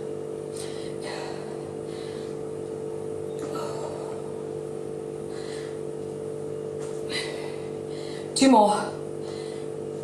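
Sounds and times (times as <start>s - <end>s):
steady hum: 0.0s - 10.0s
person breathing: 0.5s - 2.4s, 5.2s - 5.9s, 7.1s - 8.4s, 9.2s - 9.8s.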